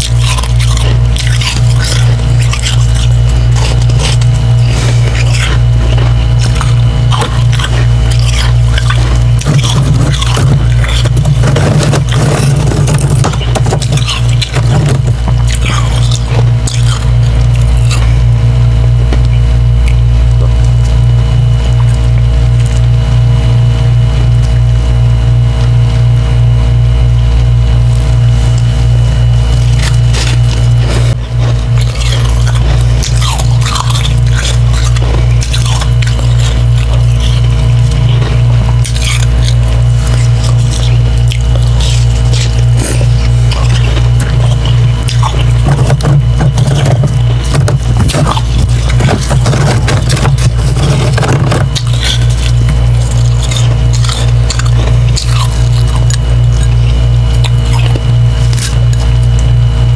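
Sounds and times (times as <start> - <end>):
chewing wet ice crunching: 0.0 - 25.8, 27.7 - 59.9.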